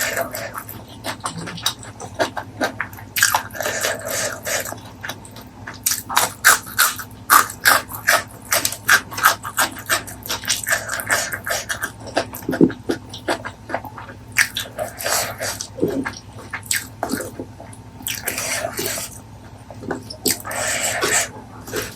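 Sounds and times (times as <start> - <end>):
wet chewing and lip smacking: 0.0 - 21.9
sharp mouth clicks: 19.8 - 21.9.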